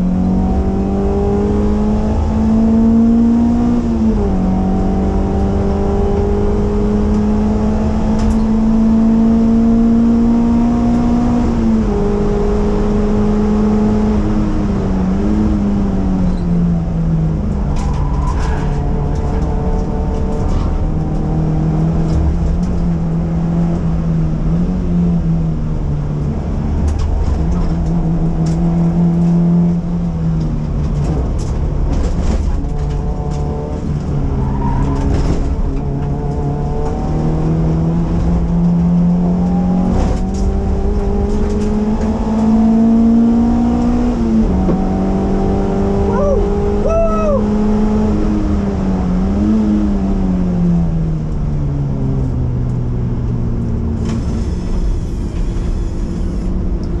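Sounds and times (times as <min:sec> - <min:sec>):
car engine accelerating hard: 0:00.0 - 0:57.0
tyre squeal: 0:17.7 - 0:19.2.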